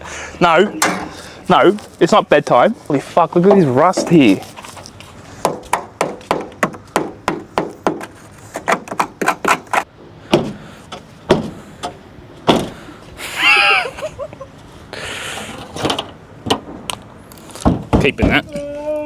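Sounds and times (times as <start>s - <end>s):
sharp knocks on car body: 5.4s - 9.7s, 10.3s - 11.6s, 12.4s - 12.8s, 17.6s - 18.5s
heavy thumps on car body: 10.3s - 10.6s, 11.3s - 11.6s, 12.4s - 12.8s, 17.6s - 18.5s.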